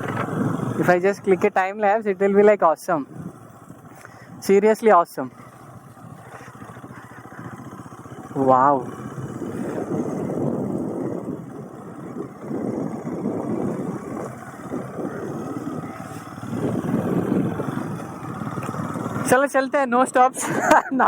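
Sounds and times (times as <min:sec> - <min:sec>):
motorcycle engine running: 0:00.0 - 0:21.0
rumbling rush of air: 0:05.3 - 0:19.3.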